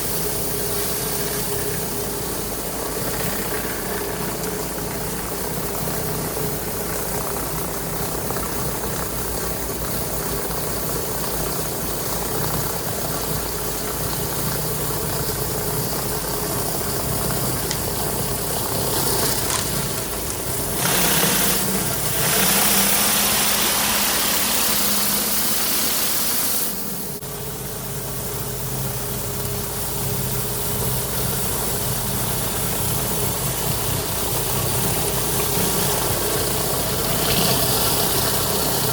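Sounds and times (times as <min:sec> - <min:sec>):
pressure washer engine running: 0:00.0 - 0:38.9
high-pressure water spray hiss: 0:09.2 - 0:38.9.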